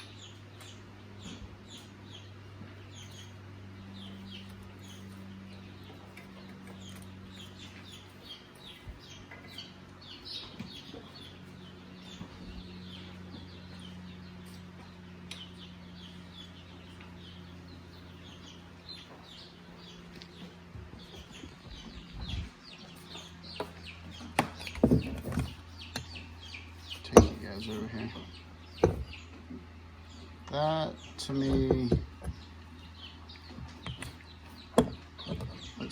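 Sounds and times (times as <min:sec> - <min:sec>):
birds chirping: 0:00.0 - 0:35.9
steady low hum: 0:00.0 - 0:35.9.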